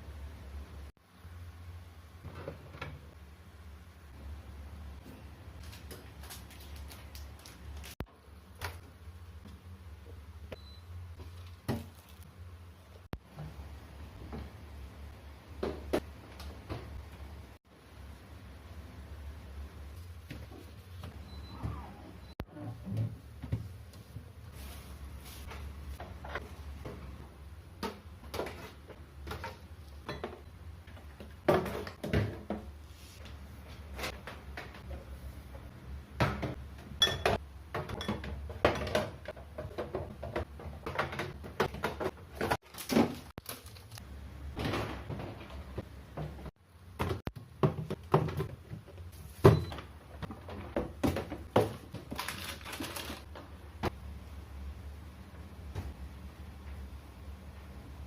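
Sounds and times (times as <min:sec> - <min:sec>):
refrigerator shelves clattering: 0:37.2 - 0:43.8, 0:44.5 - 0:53.2.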